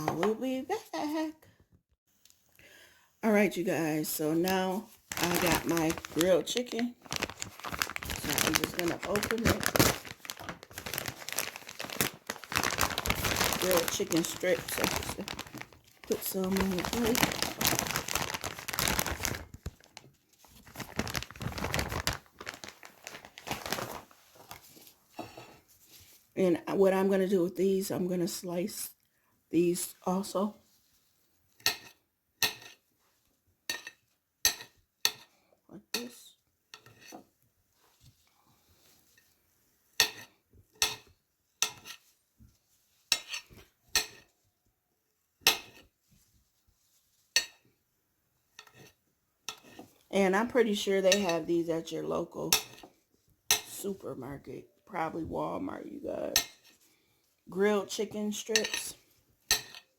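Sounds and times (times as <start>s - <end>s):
plastic packaging crinkling: 4.3s - 24.9s.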